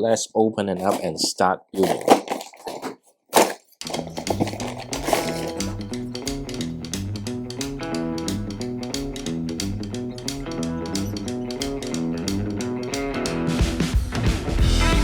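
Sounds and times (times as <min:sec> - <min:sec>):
guitar-led instrumental music: 0:03.9 - 0:15.0.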